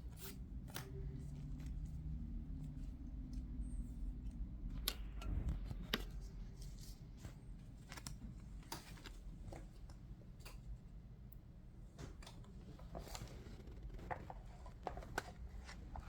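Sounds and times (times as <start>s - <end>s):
cards being handled by hand: 4.3s - 10.0s.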